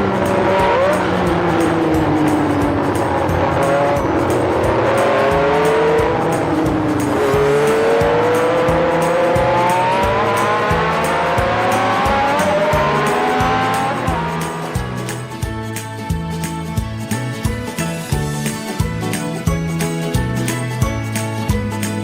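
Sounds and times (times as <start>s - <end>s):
racing car engine accelerating: 0.0s - 15.9s
music with steady beat: 0.0s - 22.0s.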